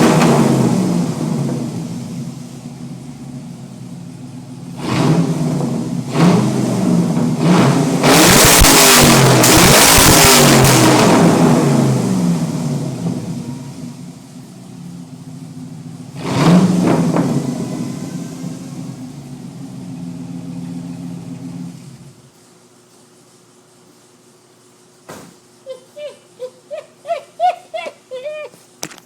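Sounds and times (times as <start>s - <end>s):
car engine revving: 0.0s - 22.2s.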